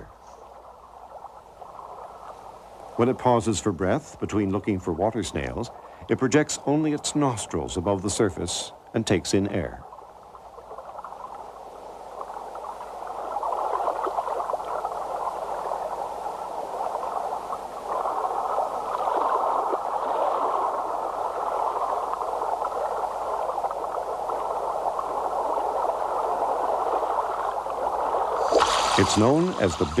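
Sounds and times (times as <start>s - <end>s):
river water rushing over rocks: 28.4s - 30.0s.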